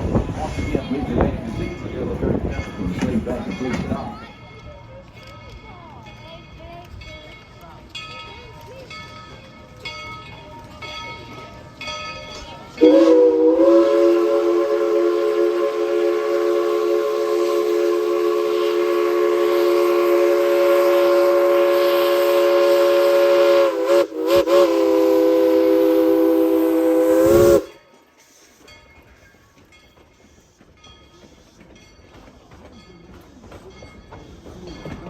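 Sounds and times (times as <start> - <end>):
moving train rattling: 0.0 - 35.0
steam locomotive chime whistle: 11.1 - 30.4.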